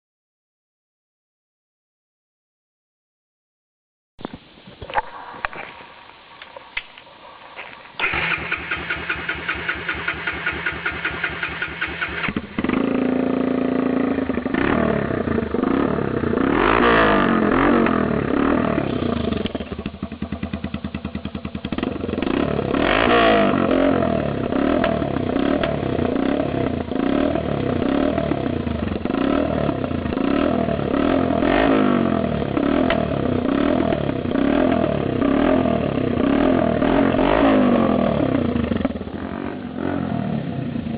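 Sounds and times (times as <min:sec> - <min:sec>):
unmuffled motorcycle engine: 0:04.2 - 0:40.9
engine cranking: 0:08.0 - 0:12.8.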